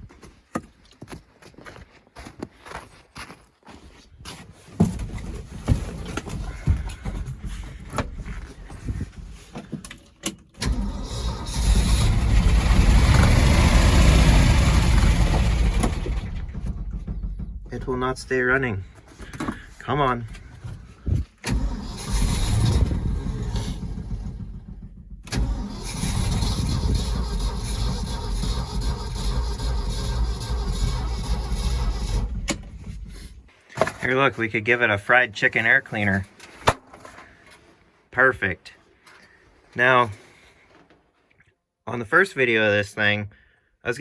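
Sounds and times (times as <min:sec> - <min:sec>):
truck engine running roughly: 0:10.6 - 0:20.8, 0:21.5 - 0:33.5
engine knocking: 0:10.7 - 0:18.7, 0:21.5 - 0:33.4.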